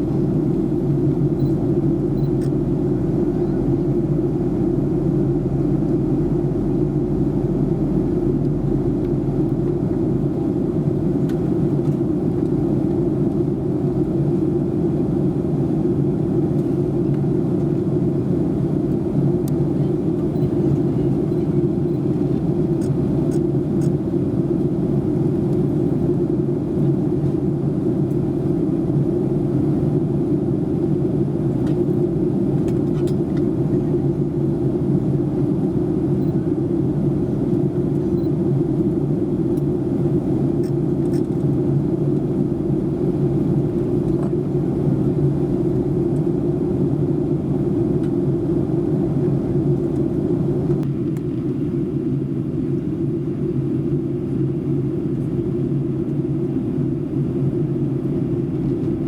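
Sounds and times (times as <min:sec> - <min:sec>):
jet engine rumble: 0:00.0 - 0:59.0.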